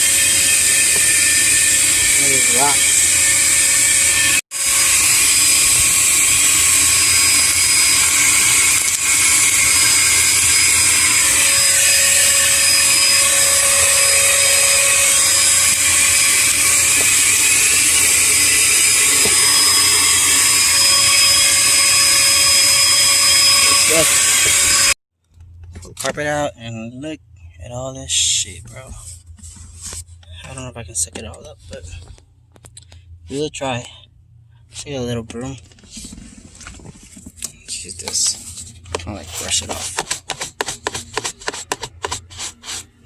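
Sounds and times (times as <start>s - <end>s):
vacuum cleaner running: 0.0s - 25.0s, 39.2s - 43.0s.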